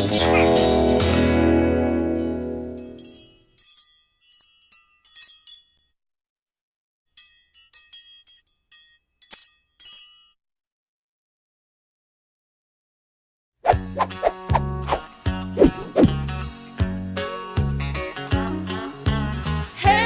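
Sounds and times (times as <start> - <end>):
high tinkling chime notes: 1.8 - 6.0, 7.2 - 10.4.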